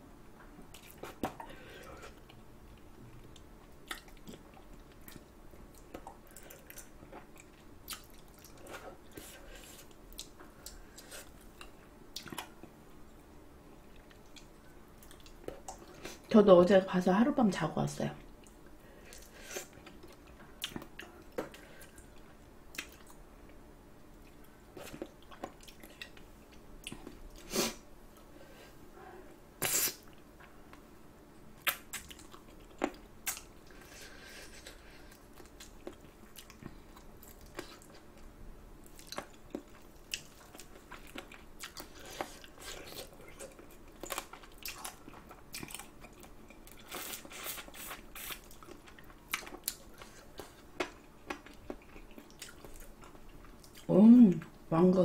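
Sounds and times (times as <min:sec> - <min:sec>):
wet chewing mouth sounds: 0:38.8 - 0:53.9.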